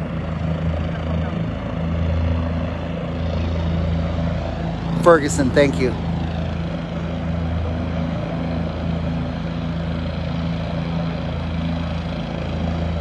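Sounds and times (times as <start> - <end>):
helicopter running: 0.0 - 13.0.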